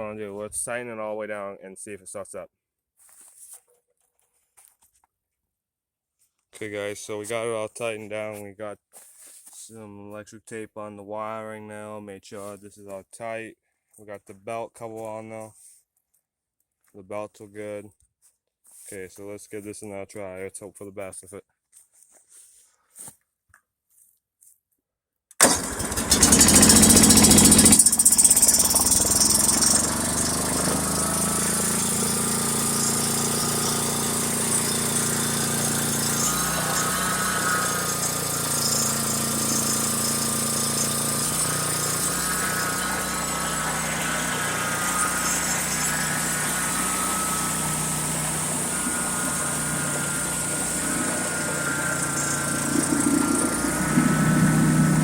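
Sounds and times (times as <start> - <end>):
engine cranking and starting: 25.4 - 55.0.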